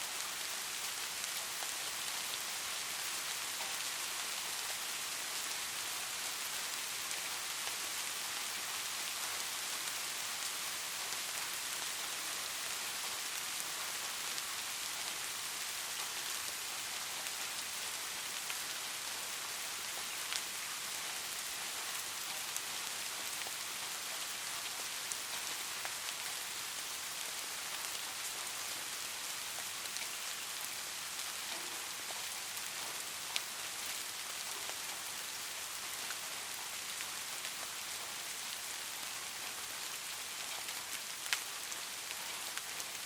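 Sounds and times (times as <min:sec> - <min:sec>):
light rain: 0:00.0 - 0:43.0.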